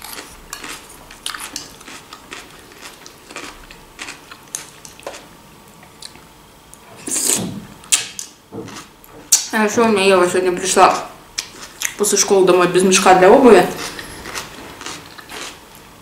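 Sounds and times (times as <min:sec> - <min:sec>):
chewing crunchy salad: 0:00.0 - 0:06.3, 0:08.0 - 0:09.5, 0:11.4 - 0:12.1, 0:13.6 - 0:15.8.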